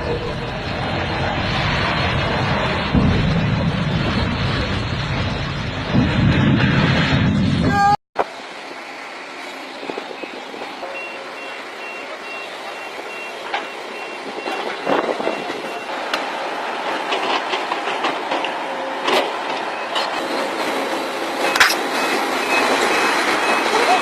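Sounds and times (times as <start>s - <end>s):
heavy machinery running: 0.0s - 7.6s, 9.1s - 24.0s
reversing alarm beeping: 10.1s - 16.0s, 21.3s - 24.0s
sharp metal clanks: 21.5s - 21.9s.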